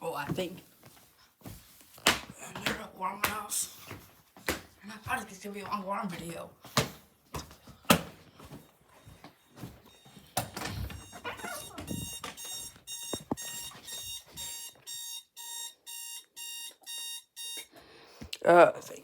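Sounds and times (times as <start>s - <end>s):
alarm clock beeping: 8.1s - 17.8s.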